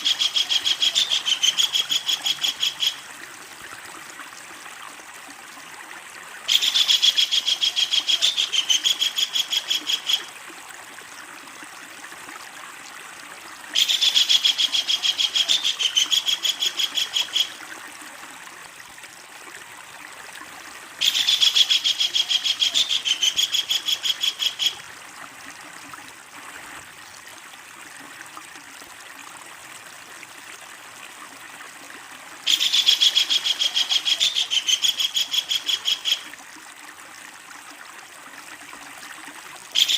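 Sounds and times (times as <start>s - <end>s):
kingfisher rattling call: 0.0s - 3.0s, 21.0s - 24.8s, 32.5s - 36.3s.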